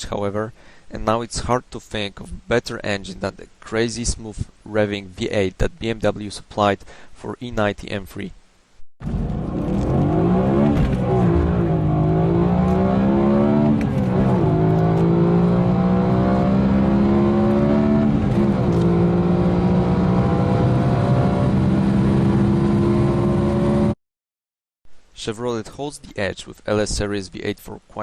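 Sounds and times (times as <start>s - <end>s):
car engine accelerating hard: 9.0s - 24.0s.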